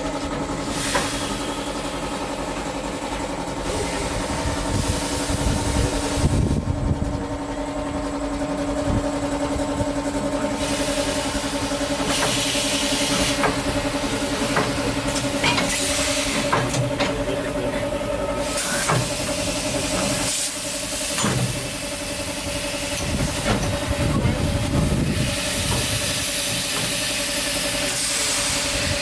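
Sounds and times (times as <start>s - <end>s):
steam hissing in surges: 0.6s - 2.5s, 10.5s - 29.0s.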